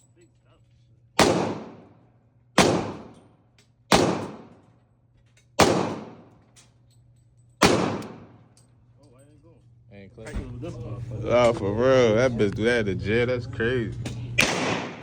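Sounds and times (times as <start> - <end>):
echoing gunshots: 1.2 - 3.3, 3.9 - 4.7, 5.6 - 6.4, 7.6 - 8.5, 14.4 - 15.0.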